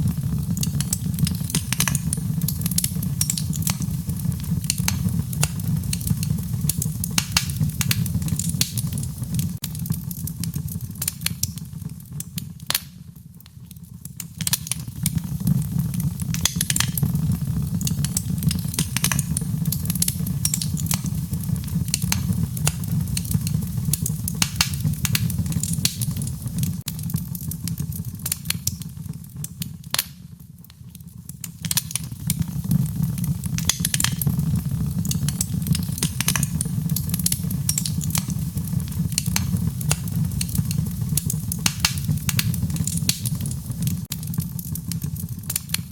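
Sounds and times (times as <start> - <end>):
fire crackling and popping: 0.0 - 45.9
low rumble of burning fire: 0.0 - 45.9.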